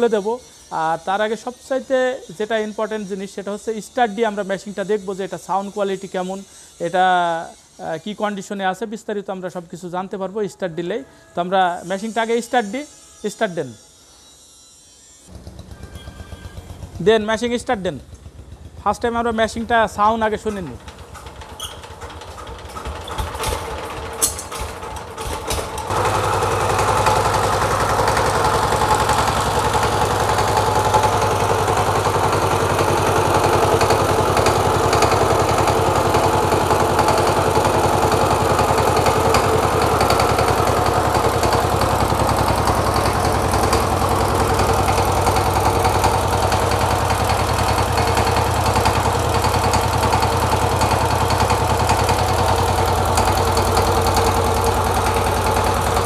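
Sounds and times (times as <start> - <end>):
diesel engine running: 15.3 - 56.0
engine cranking clicks: 19.9 - 56.0.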